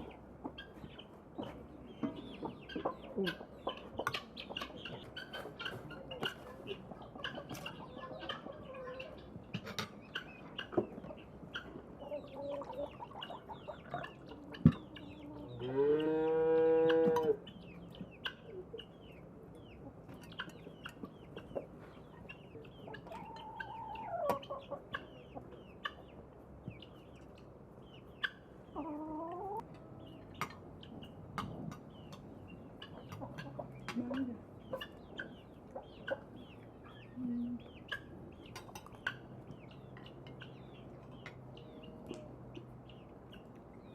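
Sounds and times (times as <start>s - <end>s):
chickens clucking: 0.0s - 43.9s
high chirps and ticks: 17.4s - 43.9s.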